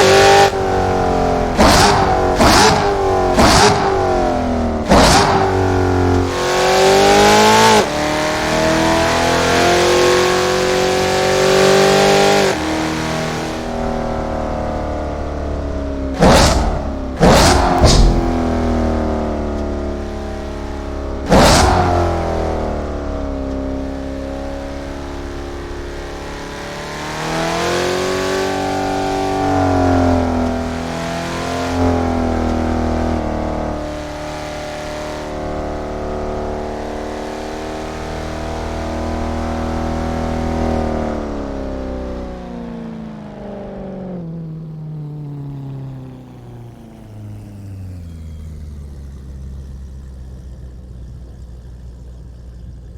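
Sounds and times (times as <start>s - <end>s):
car engine revving: 0.0s - 42.9s
sharp bang: 1.6s - 5.9s, 16.2s - 18.7s.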